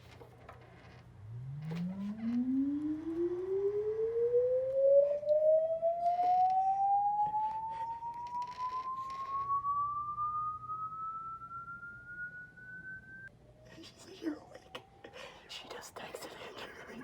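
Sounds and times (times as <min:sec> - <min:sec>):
rising pure tone sweep: 0:01.2 - 0:13.3.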